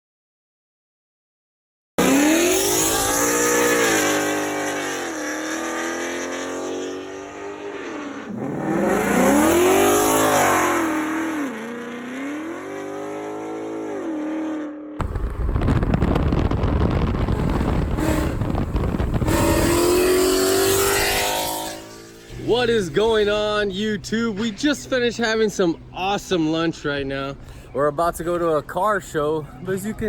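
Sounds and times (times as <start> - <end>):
car engine revving: 2.0 - 22.5
loud rough steady noise: 15.0 - 22.5.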